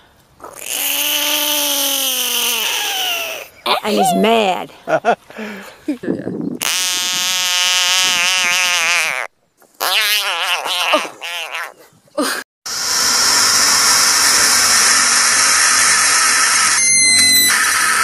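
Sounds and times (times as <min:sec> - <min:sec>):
frog hissing scream: 0:00.4 - 0:03.5, 0:12.8 - 0:18.0.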